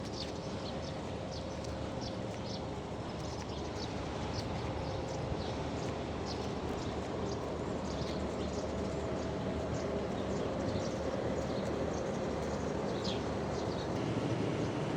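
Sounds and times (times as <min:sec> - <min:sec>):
small birds chirping: 0:09.8 - 0:14.0.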